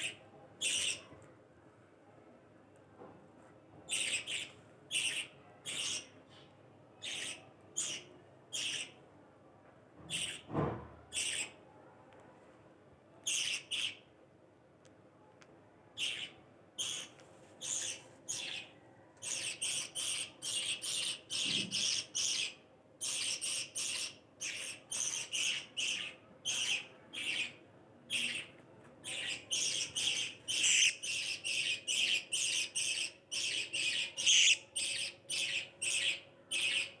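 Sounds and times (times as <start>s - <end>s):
parrots chirping and chattering: 0.0s - 1.2s, 3.9s - 9.0s, 10.1s - 10.5s, 11.1s - 11.6s, 13.2s - 14.0s, 16.0s - 37.0s.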